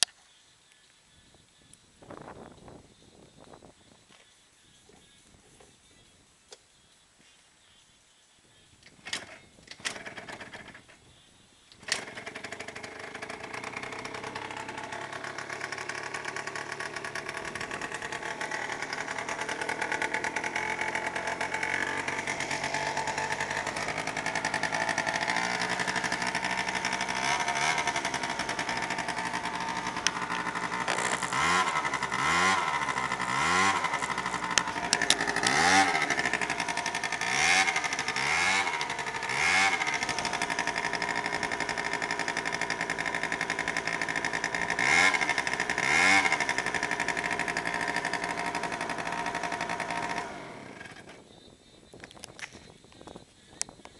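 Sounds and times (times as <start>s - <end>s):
scooter engine cranking: 9.0s - 11.0s, 11.7s - 51.2s
scooter engine revving: 9.8s - 10.9s, 11.8s - 51.2s
scooter engine idling: 9.9s - 51.3s.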